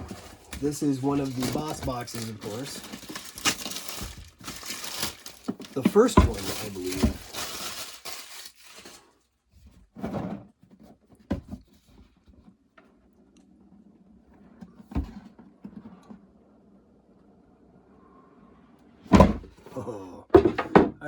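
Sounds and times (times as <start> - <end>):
wrapping crinkling: 0.0 - 9.2
cardboard box knocks and scrapes: 5.4 - 7.4, 9.7 - 12.1, 14.7 - 16.1, 19.1 - 19.6.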